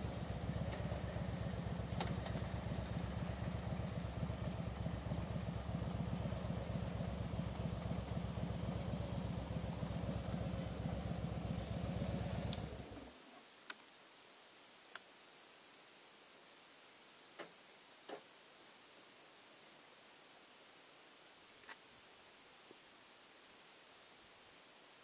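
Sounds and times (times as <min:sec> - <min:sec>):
motorcycle engine idling: 0:00.0 - 0:13.2.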